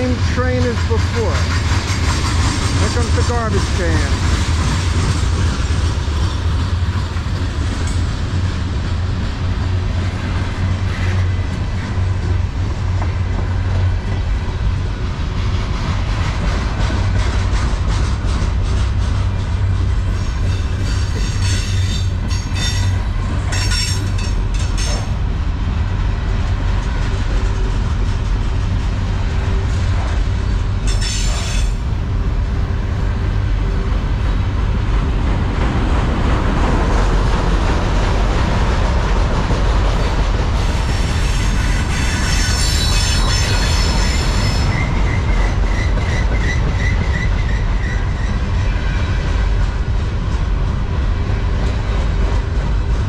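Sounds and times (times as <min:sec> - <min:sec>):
train wheels rumbling on rails: 0:00.0 - 0:53.0
train wheels squealing: 0:20.2 - 0:25.0, 0:40.9 - 0:49.4
high ringing squeal: 0:41.9 - 0:48.4.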